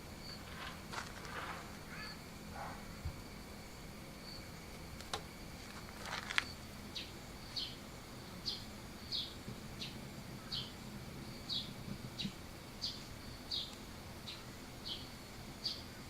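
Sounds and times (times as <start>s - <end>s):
bird chirping: 1.8s - 3.0s, 6.4s - 7.8s, 8.4s - 16.0s.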